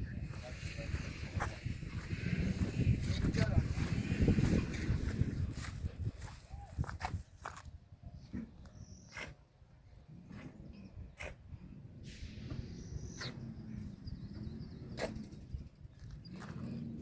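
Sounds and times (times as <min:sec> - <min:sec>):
footsteps on open ground: 0:00.0 - 0:08.8.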